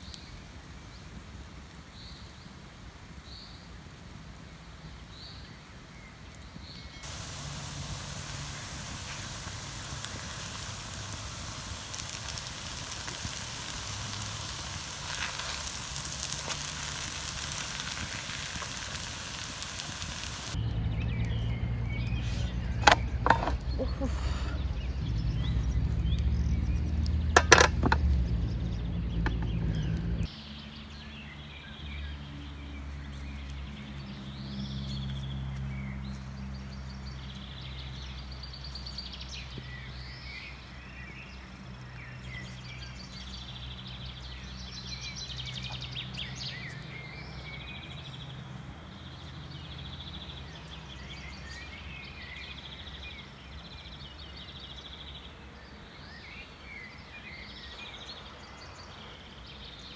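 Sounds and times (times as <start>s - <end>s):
songbirds chirping and singing: 6.8s - 32.2s, 37.0s - 59.9s
low rumbling noise: 7.0s - 30.3s.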